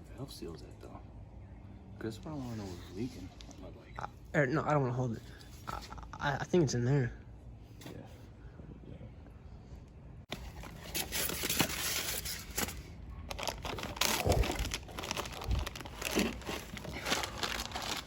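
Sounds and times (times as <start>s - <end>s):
packaging crinkling and rustling: 10.3s - 18.0s.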